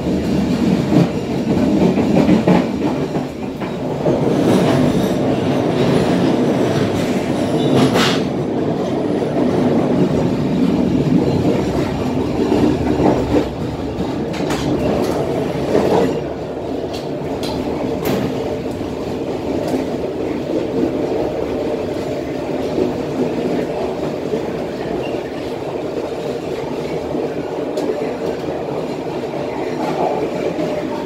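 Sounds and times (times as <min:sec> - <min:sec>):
train wheels rumbling on rails: 0:00.0 - 0:31.0
wheels clacking over rail joints: 0:09.4 - 0:18.9.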